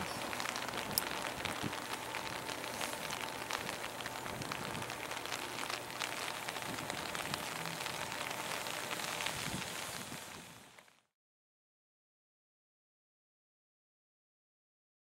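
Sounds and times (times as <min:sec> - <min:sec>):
rain hiss with drop ticks: 0:00.0 - 0:11.1.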